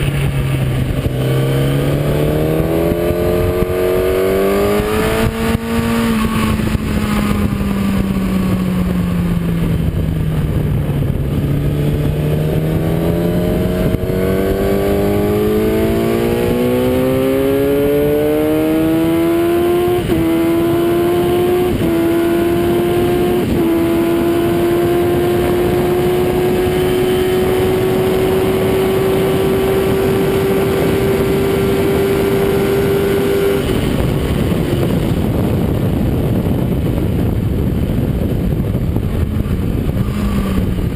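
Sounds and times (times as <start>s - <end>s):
heavy wind rush: 0.0s - 40.9s
motorcycle engine at full throttle: 0.0s - 40.9s.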